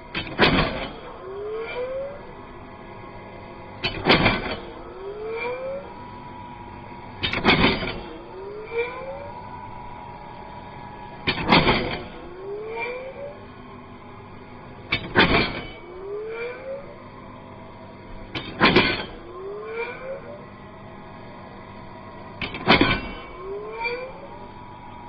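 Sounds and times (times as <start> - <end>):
nail gun firing: 0.2 - 1.0, 3.8 - 4.7, 7.2 - 8.1, 11.3 - 12.2, 14.9 - 15.7, 18.4 - 19.1, 22.4 - 23.2.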